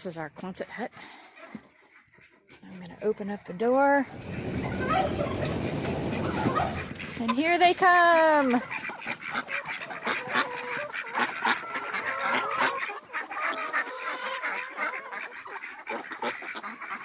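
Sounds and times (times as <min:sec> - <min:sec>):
ducks chickens and turkeys calling: 0:00.0 - 0:17.0.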